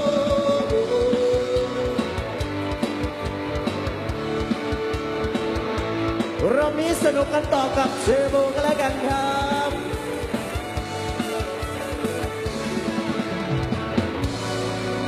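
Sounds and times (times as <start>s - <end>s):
person singing: 0.0s - 2.3s
plucked electric string melody: 0.0s - 15.0s
steady drum beat: 0.0s - 15.0s.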